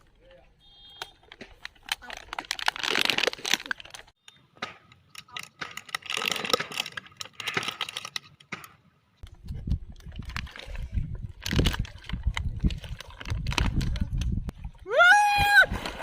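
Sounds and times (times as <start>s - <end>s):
handling clicks and crinkling: 1.0s - 8.9s, 9.6s - 14.4s.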